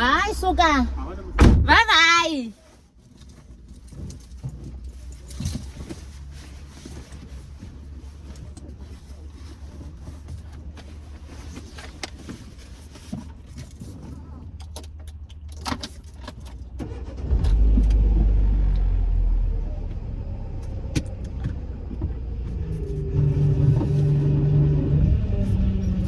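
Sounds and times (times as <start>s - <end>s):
car engine starting and idling: 13.9s - 26.0s.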